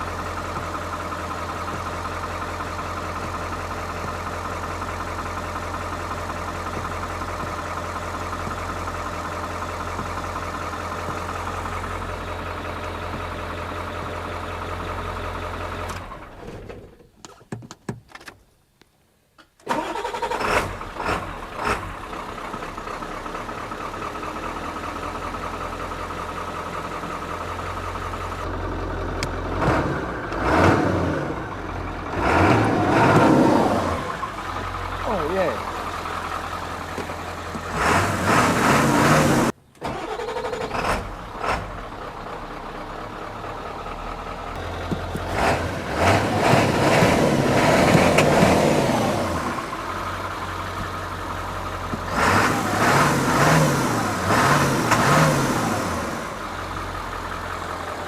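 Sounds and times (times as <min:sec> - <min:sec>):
diesel engine running: 0:00.0 - 0:16.9, 0:19.7 - 0:58.0
engine starting: 0:19.6 - 0:22.1, 0:37.7 - 0:42.1
engine revving: 0:19.7 - 0:22.3, 0:28.4 - 0:42.4, 0:43.4 - 0:57.1.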